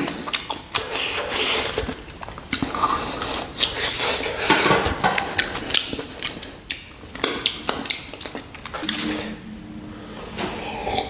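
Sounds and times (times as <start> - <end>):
wet chewing mouth sounds: 0.0 - 4.6, 5.2 - 8.9.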